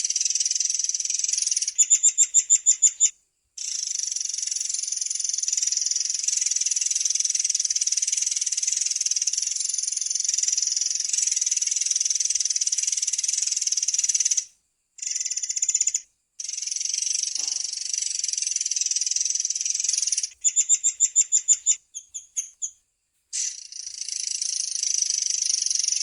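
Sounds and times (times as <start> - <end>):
bird buzzing trill: 16.5 - 18.7.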